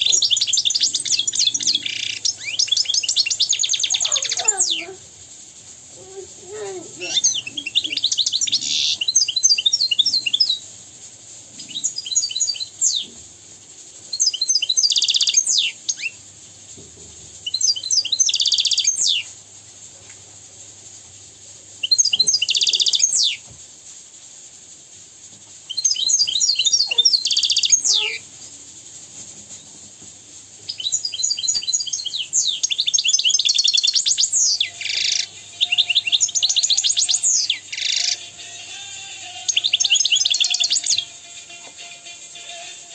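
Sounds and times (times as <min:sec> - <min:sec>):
finch twittering and trilling: 0:00.0 - 0:05.0, 0:06.0 - 0:10.6, 0:21.8 - 0:23.4, 0:25.7 - 0:28.2, 0:30.7 - 0:38.3.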